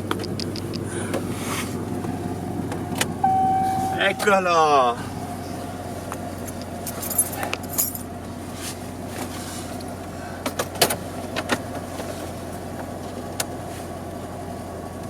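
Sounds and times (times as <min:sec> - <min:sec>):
vehicle engine idling: 0:00.0 - 0:15.0
metallic jingles of small parts: 0:06.4 - 0:08.1.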